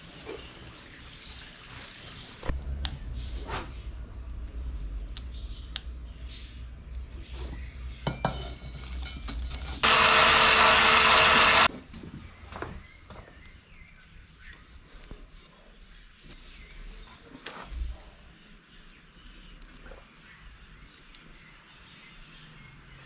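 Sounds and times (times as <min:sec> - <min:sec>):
power tool hissing: 0:09.8 - 0:11.7.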